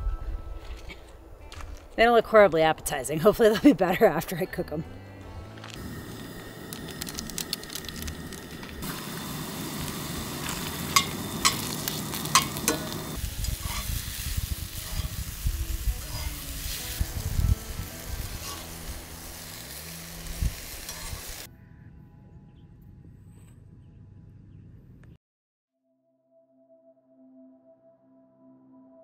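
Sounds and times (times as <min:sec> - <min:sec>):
vegetables sizzling in a pan: 0:05.8 - 0:21.5
utensil clicking against pan: 0:10.5 - 0:13.0.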